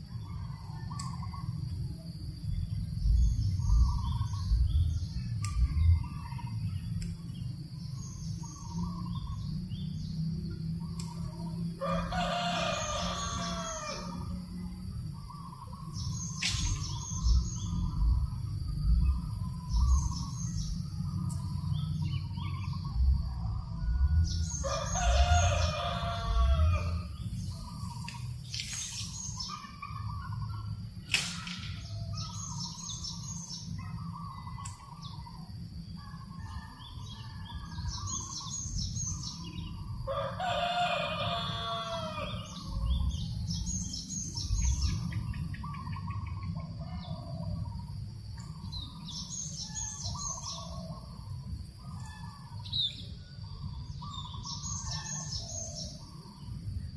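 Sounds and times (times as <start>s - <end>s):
low breeze rumble: 0.0s - 56.9s
small birds chirping: 2.4s - 56.9s
rooster crowing: 11.8s - 14.5s, 23.2s - 27.6s, 36.0s - 38.2s, 40.1s - 42.9s.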